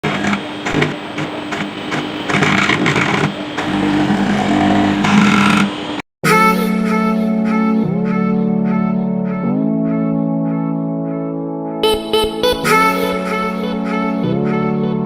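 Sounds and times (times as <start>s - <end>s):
milling machine running: 1.6s - 6.0s
guitar music: 6.3s - 15.0s.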